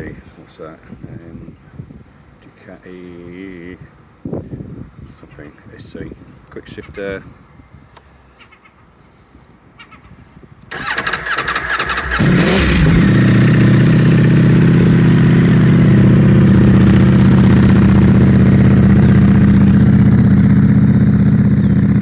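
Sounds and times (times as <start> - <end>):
electric starter cranking engine: 10.7 - 19.6
motorcycle engine idling: 10.7 - 22.0.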